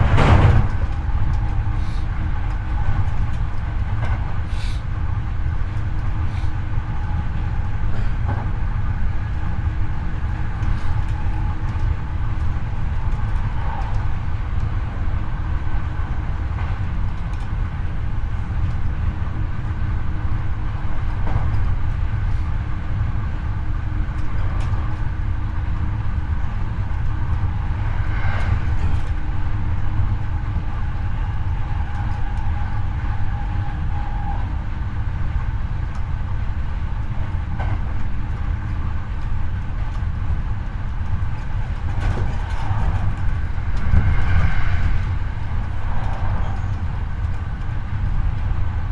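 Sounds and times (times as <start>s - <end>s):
train wheels rumbling on rail: 0.0s - 48.9s.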